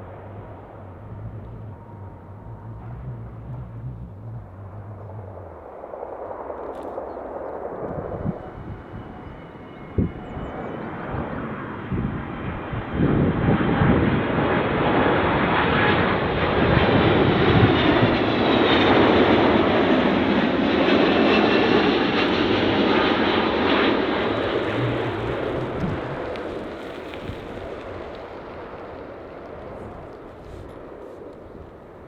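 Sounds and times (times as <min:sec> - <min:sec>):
airliner engine whine overhead: 0:00.0 - 0:32.0.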